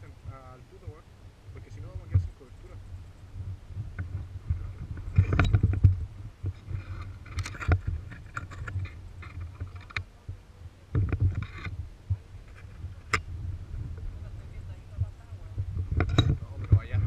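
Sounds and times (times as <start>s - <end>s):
wind rumbling on microphone: 0.0s - 17.0s
crunching and scraping: 3.8s - 10.1s, 11.0s - 13.3s.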